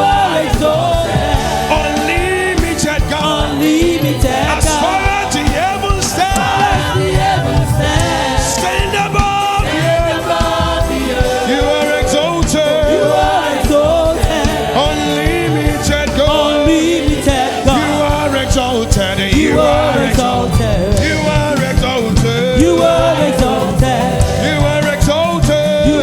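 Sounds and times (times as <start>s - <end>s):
choir singing gospel song: 0.0s - 26.0s
instrumental accompaniment: 0.0s - 26.0s
percussive hits: 4.2s - 10.2s.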